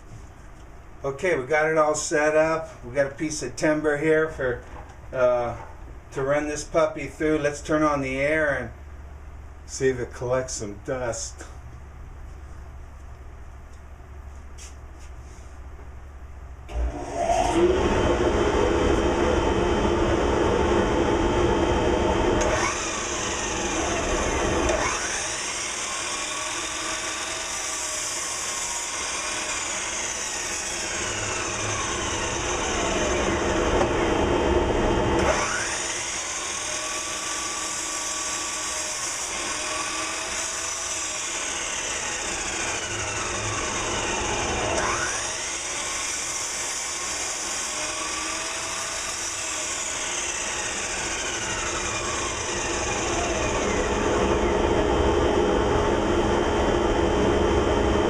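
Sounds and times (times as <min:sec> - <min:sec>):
miter saw cutting timber: 0:16.7 - 0:57.2
dust collector running: 0:16.7 - 0:58.0.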